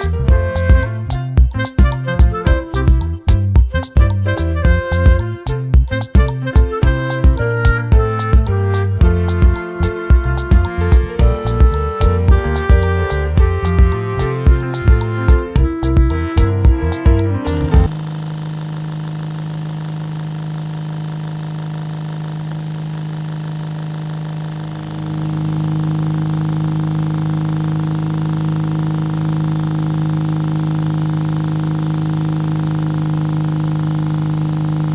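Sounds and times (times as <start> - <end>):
small electric motor humming: 17.6 - 34.9.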